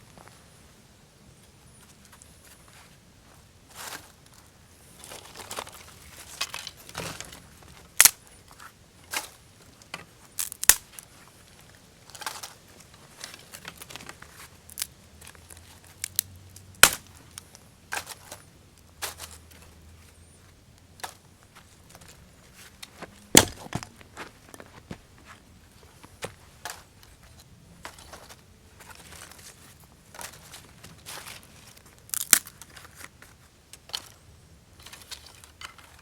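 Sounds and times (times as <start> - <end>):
dry wood snapping and crackling: 5.0 - 8.2, 9.1 - 19.7, 21.0 - 25.0, 26.0 - 34.2.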